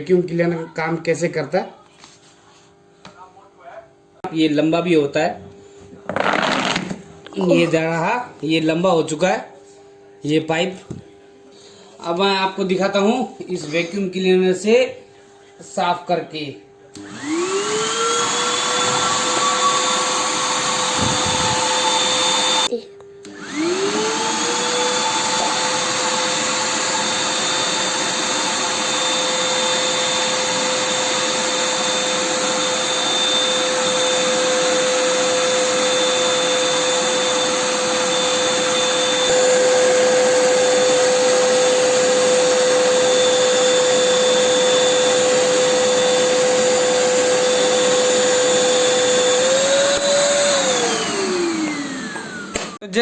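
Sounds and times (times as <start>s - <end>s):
vacuum cleaner motor whining: 5.9s - 8.6s, 16.9s - 52.8s.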